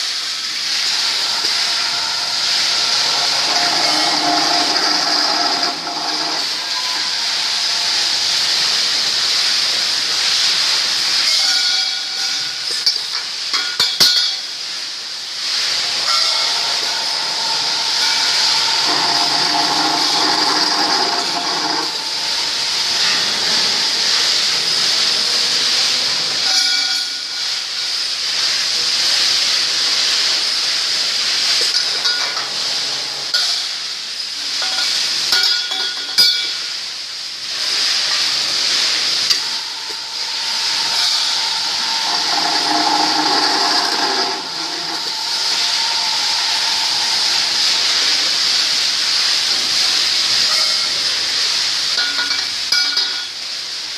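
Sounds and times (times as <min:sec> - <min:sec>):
saw cutting metal pipe: 0:00.0 - 0:10.1, 0:15.7 - 0:25.6, 0:37.5 - 0:51.0.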